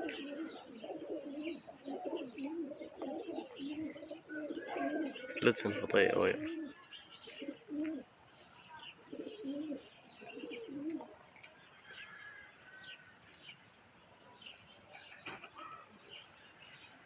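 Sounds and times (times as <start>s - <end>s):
pigeons cooing: 0.0s - 8.1s, 9.0s - 11.2s
small birds chirping: 0.0s - 17.0s.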